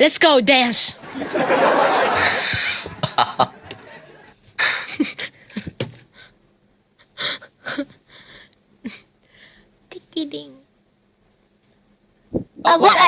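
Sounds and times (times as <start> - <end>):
people laughing: 1.0 - 5.8.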